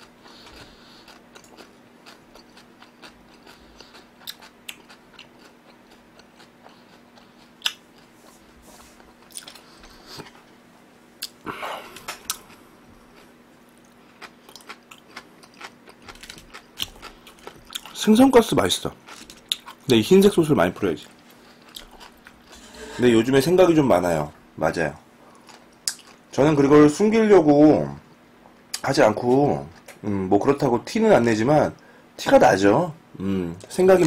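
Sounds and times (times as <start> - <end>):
crunchy chewing: 0.0 - 10.6, 11.2 - 20.0, 21.0 - 23.1, 25.3 - 26.3.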